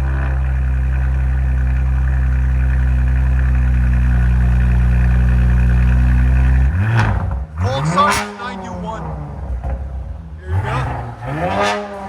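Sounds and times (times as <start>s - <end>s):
car engine idling: 0.0s - 11.4s.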